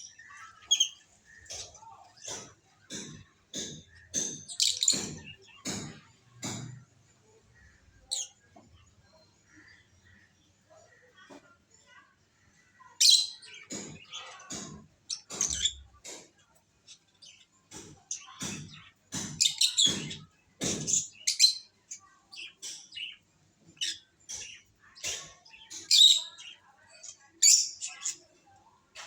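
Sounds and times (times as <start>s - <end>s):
lovebirds chirping: 0.0s - 16.1s.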